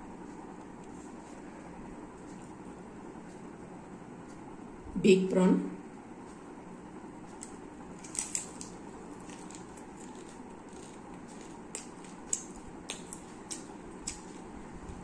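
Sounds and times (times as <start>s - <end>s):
crunching fried food: 8.0s - 14.6s
person chewing: 8.0s - 14.6s.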